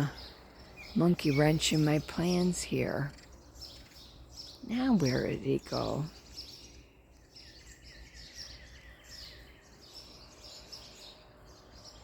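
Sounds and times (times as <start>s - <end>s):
birds chirping and singing: 0.0s - 12.0s.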